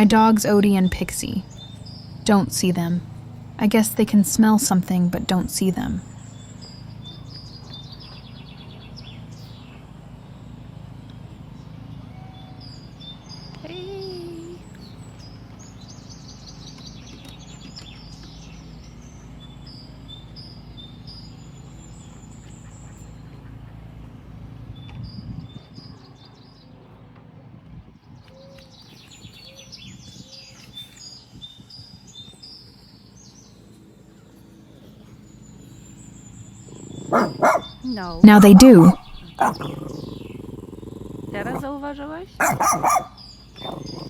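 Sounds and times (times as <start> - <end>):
small birds chirping: 0.0 - 26.8, 28.1 - 44.0
low background hum: 0.0 - 44.0.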